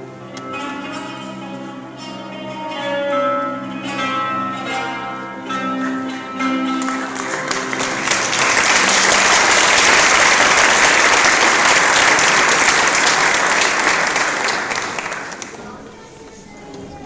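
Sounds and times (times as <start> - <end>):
plucked-string instrumental music: 0.0 - 13.2
audience applauding: 6.7 - 15.8.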